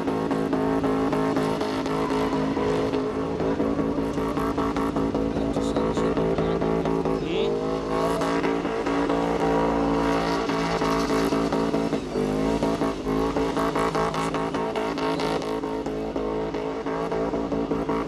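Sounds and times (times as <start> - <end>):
car engine at high revs: 0.0 - 18.0
tyres screeching: 1.1 - 9.1.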